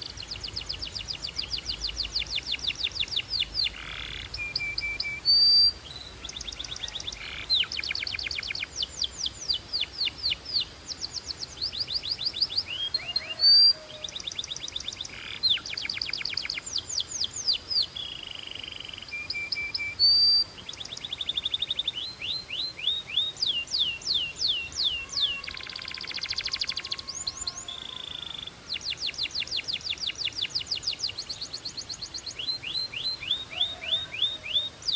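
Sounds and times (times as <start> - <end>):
canary singing trills: 0.0 - 34.9.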